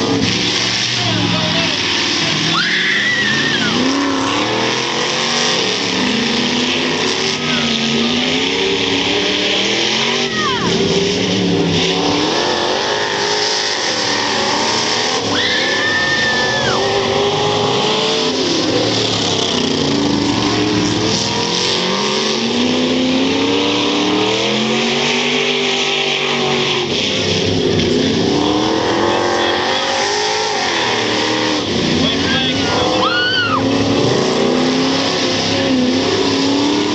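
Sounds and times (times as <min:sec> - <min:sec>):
stock car engines racing: 0:00.0 - 0:36.9.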